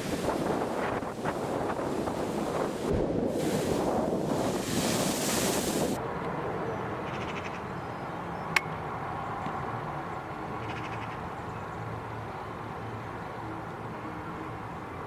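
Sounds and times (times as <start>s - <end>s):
chattering bird calls: 7.0s - 8.5s.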